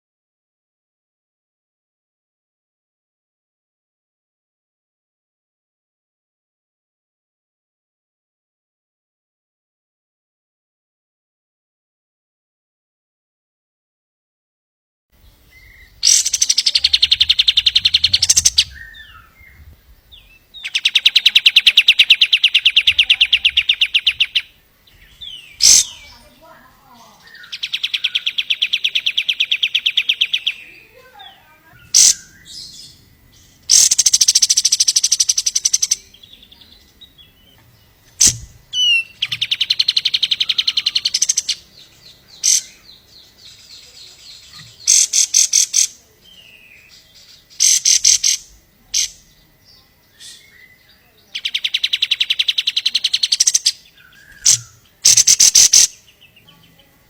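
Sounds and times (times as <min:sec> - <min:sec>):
songbird trilling: 0:15.2 - 0:57.0
single bird chirps: 0:15.5 - 0:26.2, 0:27.2 - 0:56.5.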